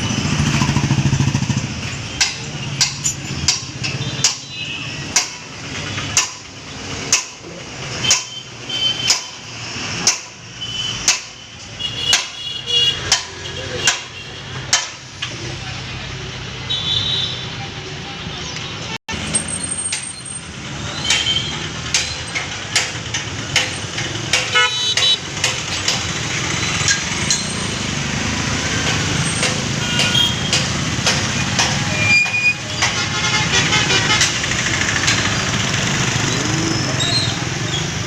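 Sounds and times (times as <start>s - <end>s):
sharp clicks and rattles: 34.1s - 36.6s.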